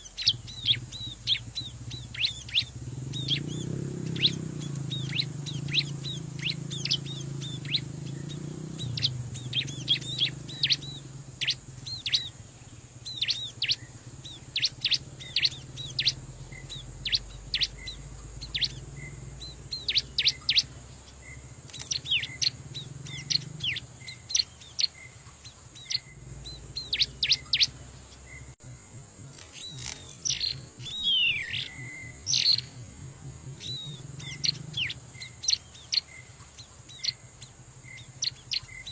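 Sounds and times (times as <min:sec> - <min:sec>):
bird chirping: 0:00.0 - 0:38.9
steady low rumble: 0:00.0 - 0:38.9.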